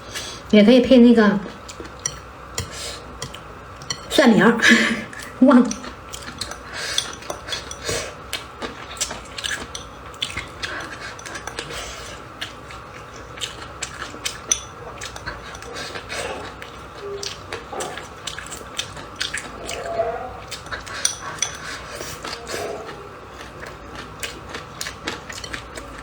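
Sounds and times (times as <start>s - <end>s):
faint steady hum: 0.0s - 26.0s
chopsticks tapping a bowl: 2.0s - 4.1s.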